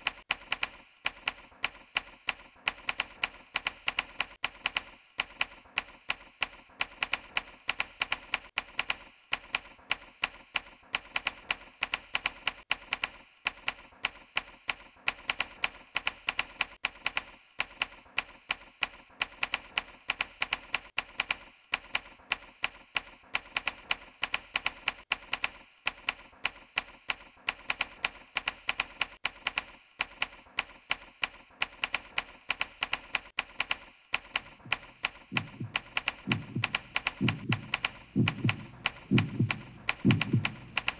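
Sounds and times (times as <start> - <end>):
keyboard typing clicks: 31.6 - 40.9.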